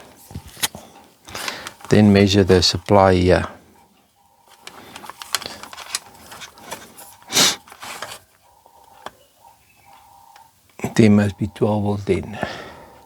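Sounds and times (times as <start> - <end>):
rustling: 4.4 - 8.9
short hissing burst: 7.3 - 7.7.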